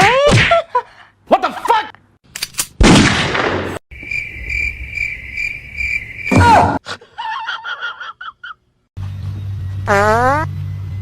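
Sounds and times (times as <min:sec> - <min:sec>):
cricket-like chirping: 0:03.9 - 0:06.8.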